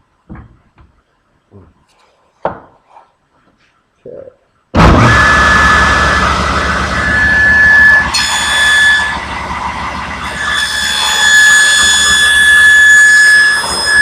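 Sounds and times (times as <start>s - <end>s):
table saw whining: 4.8s - 14.0s.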